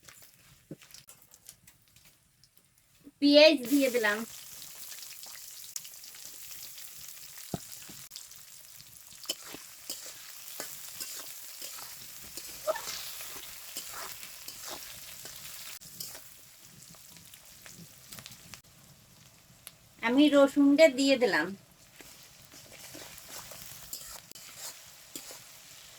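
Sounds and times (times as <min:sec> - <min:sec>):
onion sizzling in hot oil: 0:03.2 - 0:25.9
spatula scraping a pan: 0:09.2 - 0:17.8, 0:21.9 - 0:25.9.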